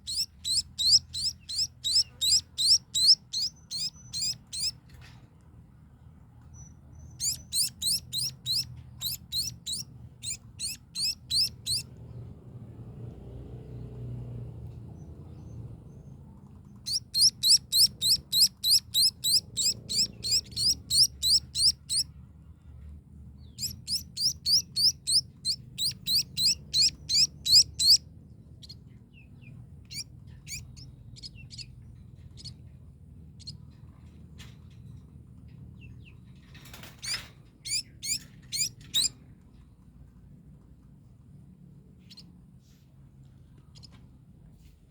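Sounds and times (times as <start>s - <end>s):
baby birds cheeping: 0.0s - 4.8s, 6.5s - 11.9s, 15.3s - 22.1s, 23.4s - 32.7s, 35.8s - 39.2s.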